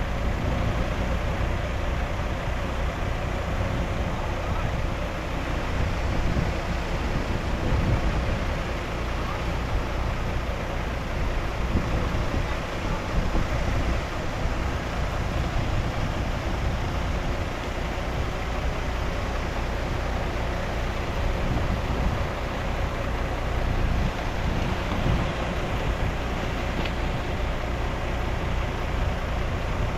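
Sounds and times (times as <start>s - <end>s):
diesel engine rumbling: 0.0s - 29.9s.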